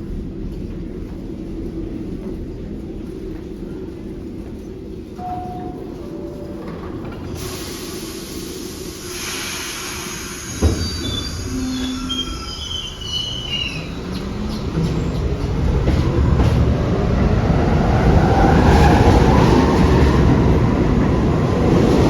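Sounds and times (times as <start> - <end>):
subway train rumble: 0.0 - 22.0
hiss: 7.4 - 12.0
high wheel squeals: 10.1 - 14.2.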